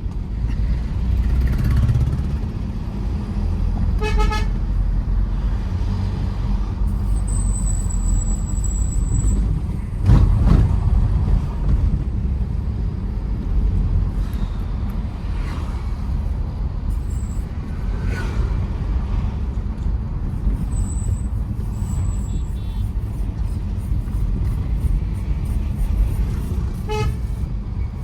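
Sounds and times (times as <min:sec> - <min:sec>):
car engine and road noise: 0:00.0 - 0:28.0
car horn toot: 0:04.0 - 0:04.6, 0:21.8 - 0:23.0, 0:26.8 - 0:27.4.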